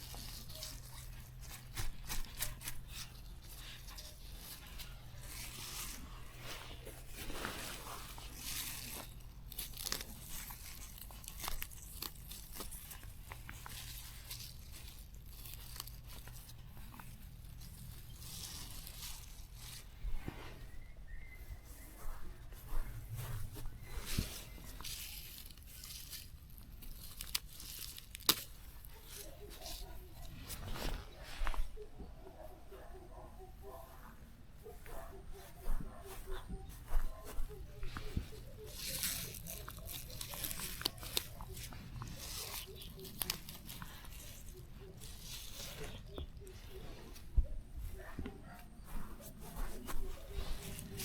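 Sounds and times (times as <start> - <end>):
grass being torn by hand: 0.0 - 20.6, 22.7 - 31.6, 35.6 - 51.0
plants rustling and tearing: 0.0 - 51.0
plant stems snapping: 7.3 - 19.8, 24.0 - 31.2, 36.8 - 47.3.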